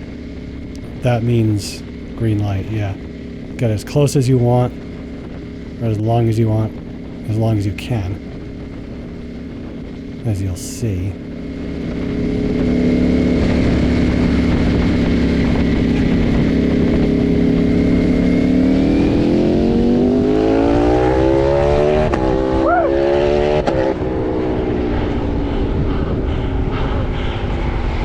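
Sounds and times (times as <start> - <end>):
motorcycle engine accelerating: 0.0 - 28.0
wind rush on microphone: 11.1 - 28.0.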